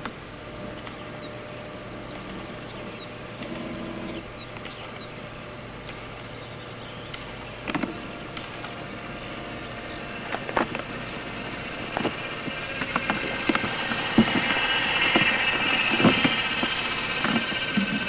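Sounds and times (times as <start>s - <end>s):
sharp clicks and knocks: 10.2s - 18.0s.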